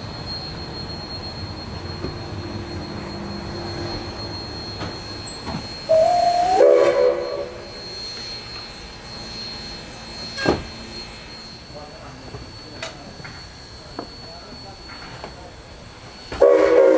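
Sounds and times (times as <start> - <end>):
train rumbling: 0.0 - 16.9
steam locomotive whistle: 2.7 - 8.7, 16.3 - 16.9.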